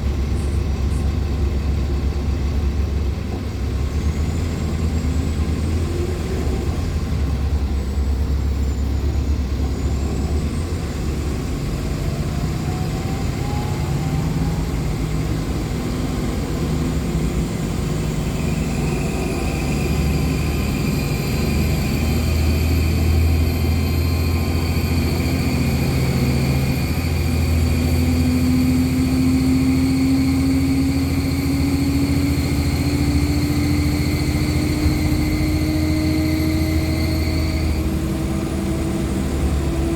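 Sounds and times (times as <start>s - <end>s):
bus engine and road rumble: 0.0s - 39.9s
high whine climbing in pitch: 11.7s - 39.9s.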